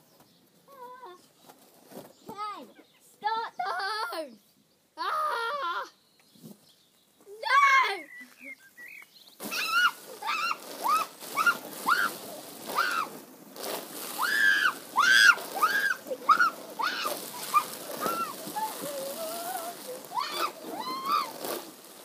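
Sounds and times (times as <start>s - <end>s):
child shrieking: 5.0s - 6.0s, 9.5s - 13.2s, 14.2s - 21.4s
hose water spray splashing: 9.3s - 22.0s.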